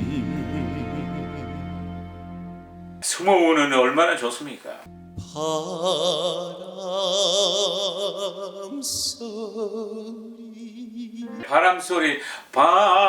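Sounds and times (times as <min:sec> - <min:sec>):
man singing with vibrato: 0:00.0 - 0:01.8, 0:05.2 - 0:13.0
quick breath: 0:12.2 - 0:12.6.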